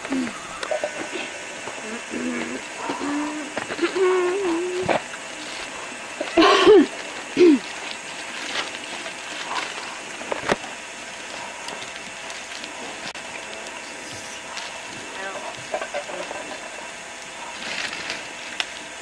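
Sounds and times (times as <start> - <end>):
person's wordless vocal sounds: 1.8 - 5.0, 6.4 - 7.6.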